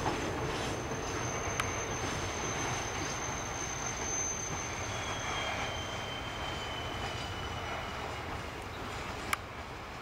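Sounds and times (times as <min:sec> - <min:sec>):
freight train rumbling past: 0:00.0 - 0:10.0
high wheel squeal: 0:00.5 - 0:08.5
low wheel squeal: 0:00.5 - 0:08.5.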